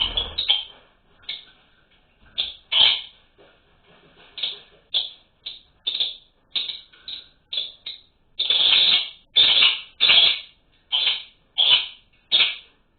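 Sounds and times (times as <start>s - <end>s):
small birds harsh chirps: 0.0s - 0.7s, 4.4s - 12.7s.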